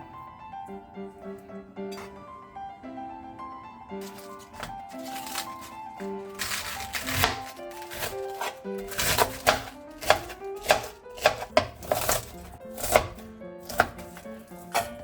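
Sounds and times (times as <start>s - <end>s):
soft background music: 0.0s - 15.0s
knife chopping on cutting board: 4.0s - 15.0s.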